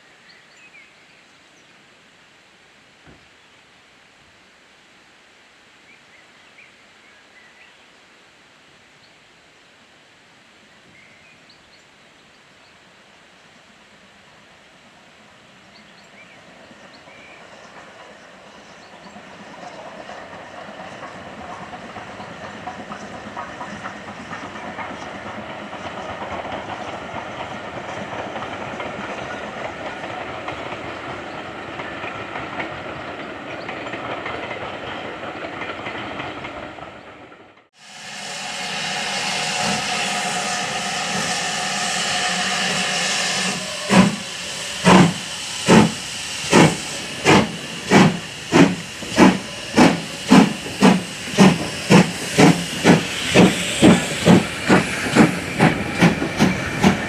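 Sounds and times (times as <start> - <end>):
loud steam hiss: 15.4 - 32.6, 37.8 - 57.0
train wheels rumbling on rail: 16.0 - 57.0
steam locomotive exhaust chuffs: 17.4 - 33.0, 37.8 - 57.0.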